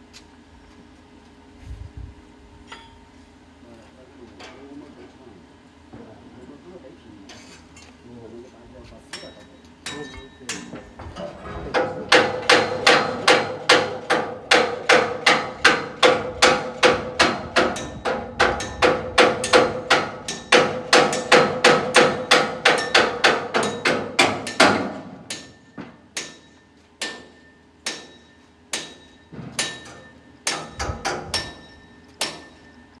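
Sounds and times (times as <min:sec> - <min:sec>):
hammer blows ringing: 0:09.1 - 0:33.0.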